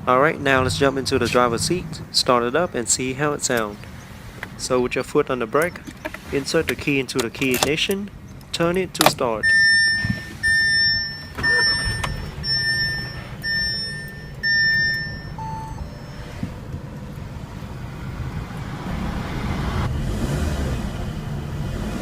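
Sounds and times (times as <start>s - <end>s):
car engine idling: 0.0s - 20.1s
dashboard warning chime: 8.2s - 17.2s.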